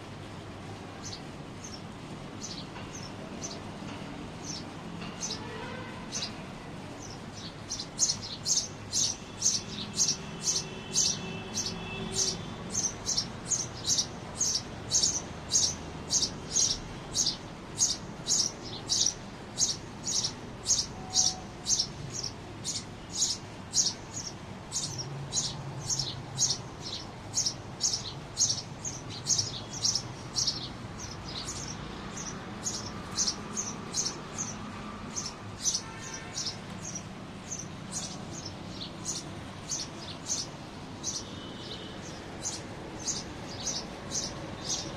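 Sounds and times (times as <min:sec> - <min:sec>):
pet bird chirping: 0:07.7 - 0:44.9.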